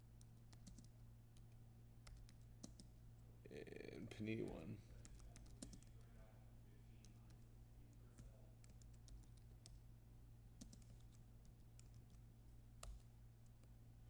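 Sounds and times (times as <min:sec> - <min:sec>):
low electrical hum: 0:00.0 - 0:14.0
typing on computer keyboard: 0:00.2 - 0:02.9, 0:05.0 - 0:06.0, 0:10.6 - 0:12.2.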